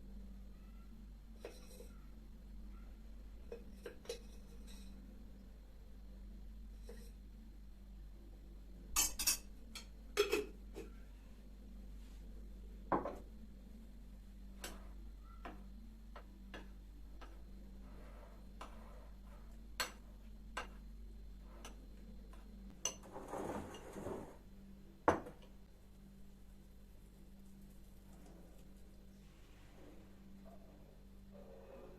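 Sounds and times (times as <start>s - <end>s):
noisy scraping: 23.0s - 24.4s.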